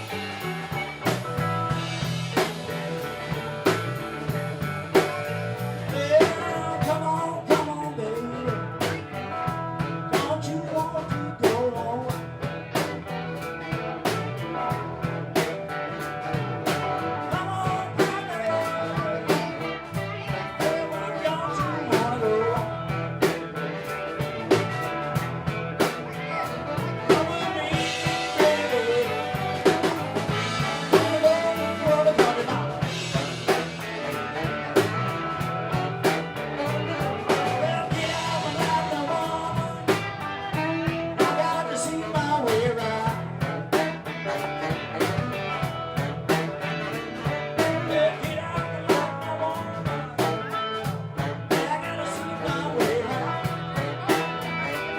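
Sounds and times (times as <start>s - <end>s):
live blues-rock band playing: 0.0s - 54.9s.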